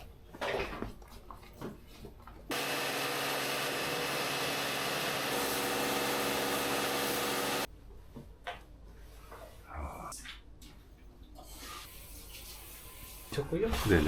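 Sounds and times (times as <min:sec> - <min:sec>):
electric motor running: 0:02.5 - 0:07.7.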